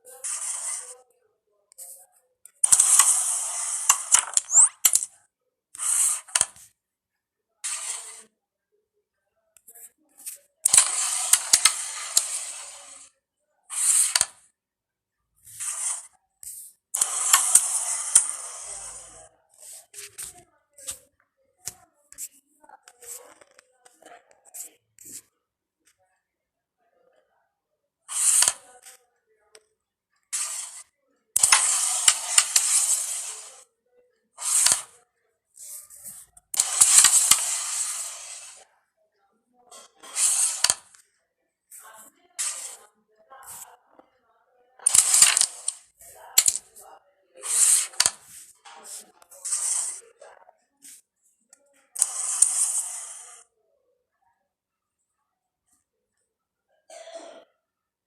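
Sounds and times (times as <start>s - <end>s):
pieces sliding across board: 0.0s - 1.0s, 2.6s - 5.1s, 5.8s - 6.7s, 7.6s - 8.3s, 9.7s - 13.1s, 13.7s - 14.4s, 15.4s - 23.7s, 28.1s - 28.7s, 30.4s - 33.6s, 34.4s - 35.0s, 35.6s - 38.6s, 39.8s - 41.0s, 41.7s - 43.7s, 44.8s - 46.8s, 47.4s - 50.1s, 52.0s - 53.4s
striker clicking against coins: 2.6s - 5.1s, 36.6s - 38.6s, 44.9s - 45.8s, 46.4s - 46.6s, 52.0s - 53.3s
striker clicking on carrom pieces: 2.6s - 5.1s, 10.7s - 13.0s, 13.7s - 14.4s, 15.6s - 19.0s, 28.1s - 28.6s, 31.4s - 33.6s, 34.4s - 35.0s, 36.6s - 38.6s, 40.0s - 41.0s, 44.9s - 45.8s, 46.4s - 46.7s, 52.0s - 53.3s.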